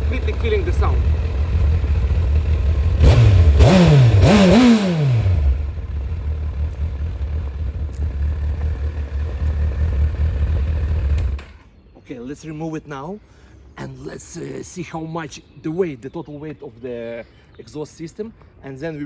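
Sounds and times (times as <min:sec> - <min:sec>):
motorcycle engine idling and revving: 0:00.0 - 0:11.7.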